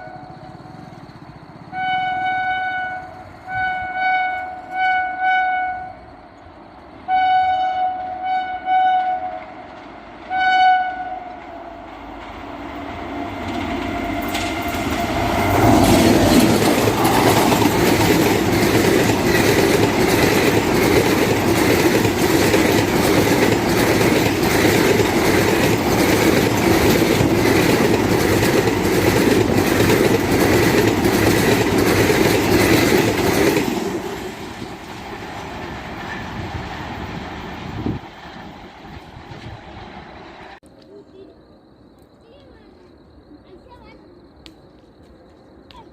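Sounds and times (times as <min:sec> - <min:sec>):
train passing with steady rumble: 0:00.0 - 0:45.9
train horn blasts: 0:01.7 - 0:06.1, 0:07.0 - 0:09.6, 0:10.3 - 0:11.7
wheels clacking over rail joints: 0:09.0 - 0:40.6.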